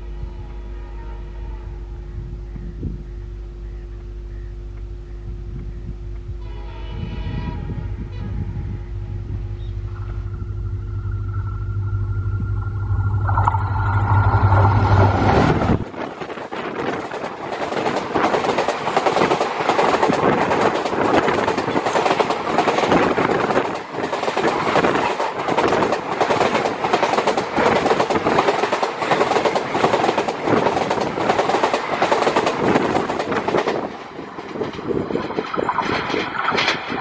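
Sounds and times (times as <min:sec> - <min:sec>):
train wheels clattering on track: 0:15.8 - 0:37.0.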